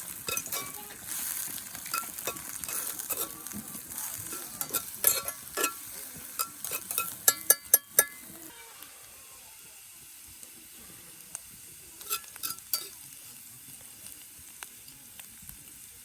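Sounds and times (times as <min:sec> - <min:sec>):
metal utensil clinking on pan: 0:00.0 - 0:08.4, 0:12.0 - 0:13.0
food sizzling in a skillet: 0:00.0 - 0:16.0.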